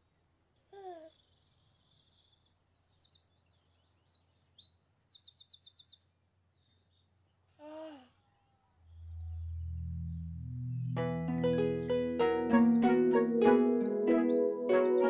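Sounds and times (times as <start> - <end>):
songbirds chirping and trilling: 1.1 - 7.6, 9.4 - 15.0.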